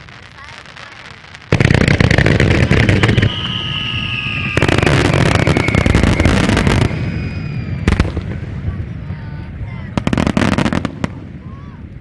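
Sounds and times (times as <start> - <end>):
fireworks bangs and crackles: 0.0 - 12.0
descending high whistle: 2.8 - 7.9.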